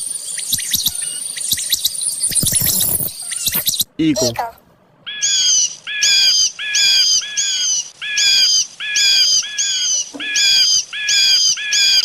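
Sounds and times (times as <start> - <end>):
eagle crying: 3.1 - 3.6, 5.1 - 12.0.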